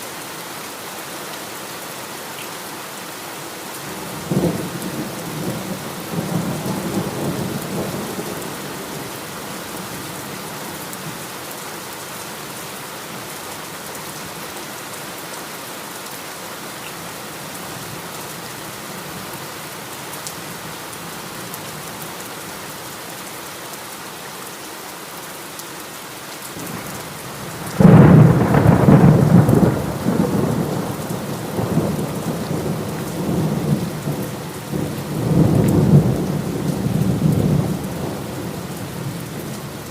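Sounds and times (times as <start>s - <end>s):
heavy rain: 0.0s - 39.9s
thunder rumbling: 27.4s - 39.2s.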